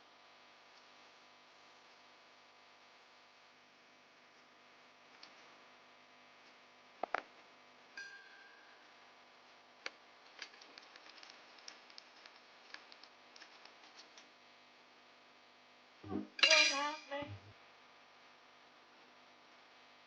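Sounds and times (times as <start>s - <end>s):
faint steady hum: 0.0s - 20.0s
light clicks and ticks: 9.8s - 14.3s.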